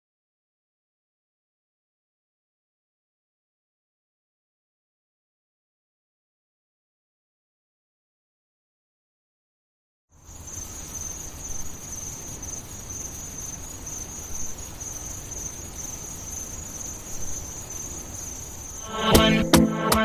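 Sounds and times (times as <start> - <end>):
crickets chirping: 10.2 - 20.0.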